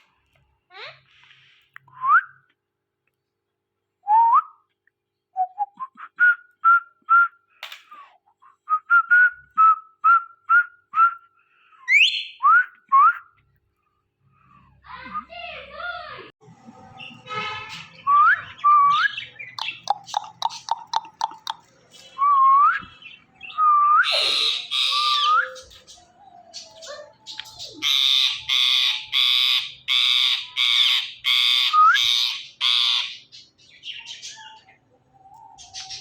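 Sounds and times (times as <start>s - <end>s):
parrot whistling: 22.2s - 25.8s
parrot squawking: 24.0s - 33.4s.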